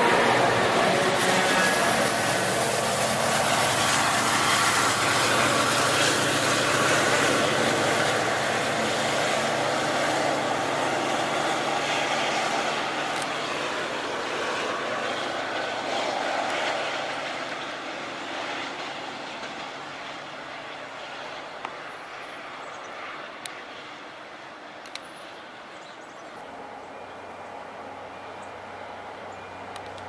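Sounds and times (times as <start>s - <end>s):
diesel locomotive engine droning: 0.0s - 30.0s
train wheel and rail noise: 0.0s - 30.0s.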